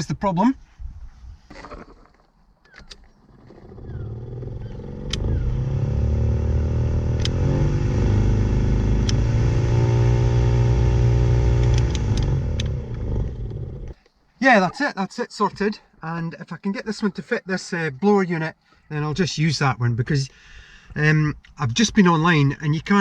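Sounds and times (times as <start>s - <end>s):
heater blower motor humming: 3.8s - 14.0s.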